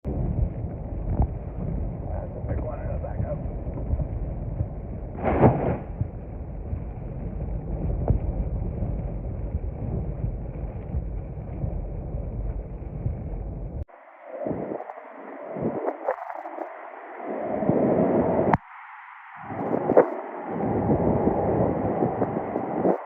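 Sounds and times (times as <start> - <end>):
storm wind buffeting microphone: 0.0 - 18.7, 19.4 - 23.0
loud crash: 5.2 - 5.9.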